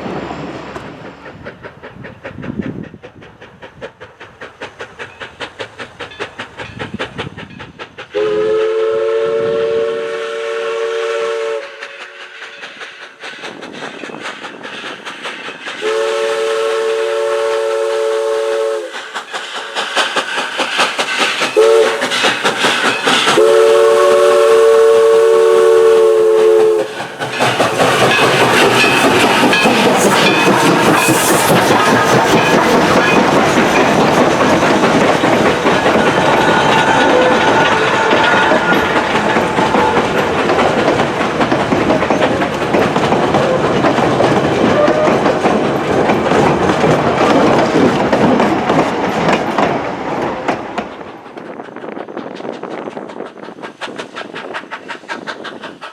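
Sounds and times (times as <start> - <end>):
steam locomotive exhaust beats: 0.0 - 55.9
train wheels clattering on rails: 0.0 - 55.9.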